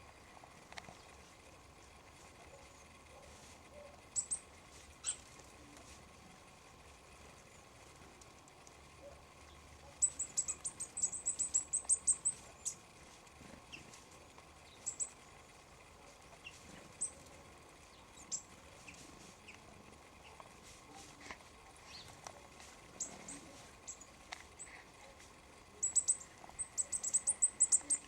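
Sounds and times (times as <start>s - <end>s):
small songbirds calling: 0.8s - 5.8s, 8.7s - 28.0s.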